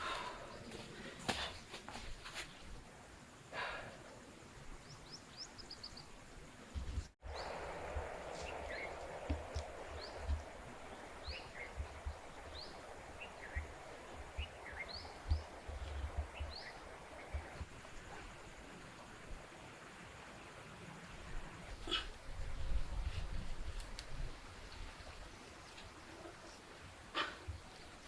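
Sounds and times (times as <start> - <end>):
small birds chirping: 3.8 - 18.3
wind buffeting microphone: 6.7 - 18.6, 21.3 - 25.3
steady rushing noise: 6.7 - 25.1.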